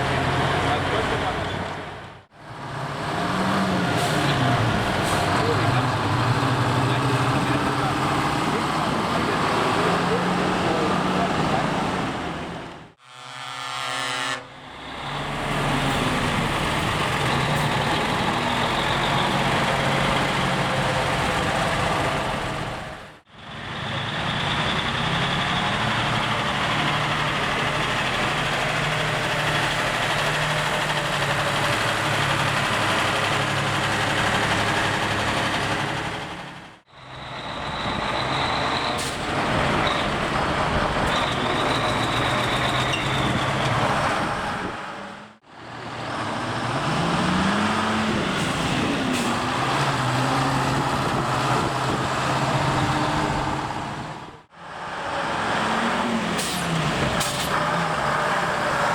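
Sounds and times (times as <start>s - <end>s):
truck engines running: 0.0s - 13.0s, 14.4s - 58.9s.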